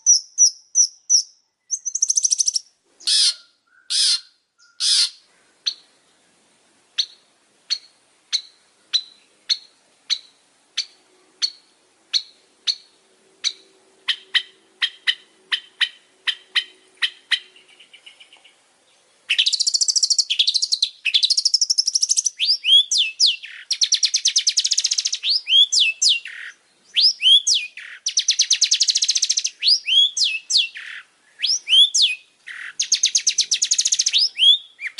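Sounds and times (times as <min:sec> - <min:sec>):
shrike singing: 0:19.3 - 0:34.9.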